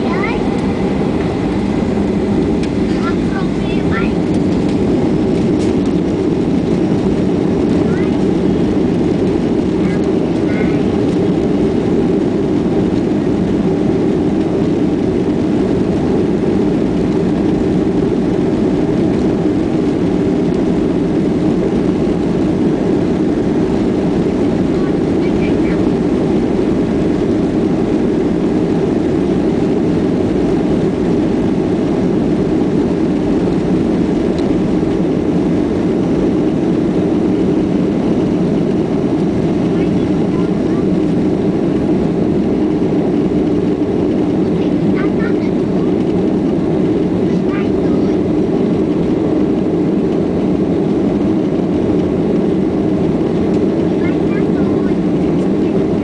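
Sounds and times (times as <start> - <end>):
rushing air: 0.0 - 25.2
jet engines roaring: 0.0 - 56.0.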